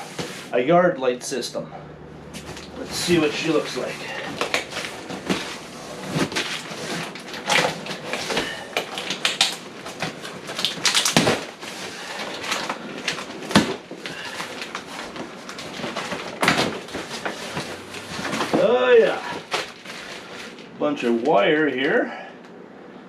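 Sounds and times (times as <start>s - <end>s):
cardboard rustling and tearing: 2.4s - 20.7s.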